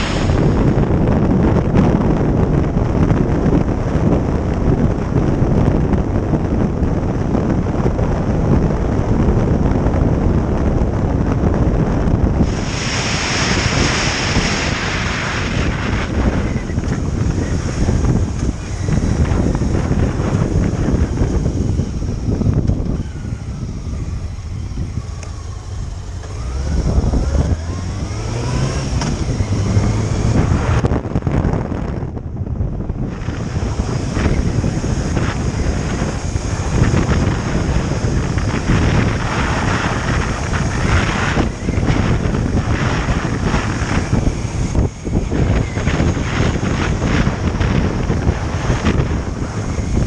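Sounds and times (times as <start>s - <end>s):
motorcycle engine accelerating: 0.0s - 50.0s
wind buffeting microphone: 0.0s - 50.0s.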